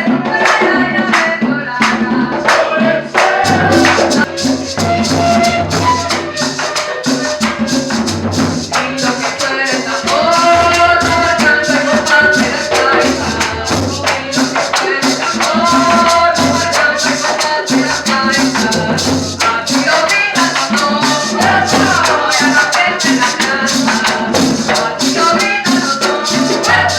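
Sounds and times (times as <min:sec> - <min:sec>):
shaker fast rhythm: 0:00.0 - 0:26.9
held melody line: 0:03.5 - 0:23.4.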